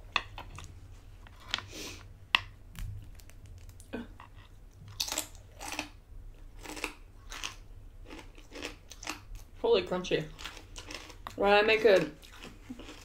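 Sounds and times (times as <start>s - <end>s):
crunchy chewing of bacon: 4.8s - 9.6s, 10.2s - 13.0s.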